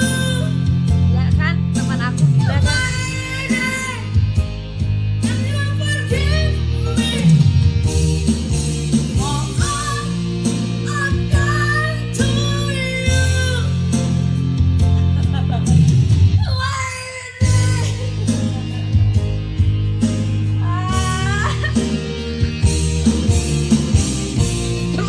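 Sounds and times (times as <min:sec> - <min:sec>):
guitar music: 0:24.2 - 0:25.0.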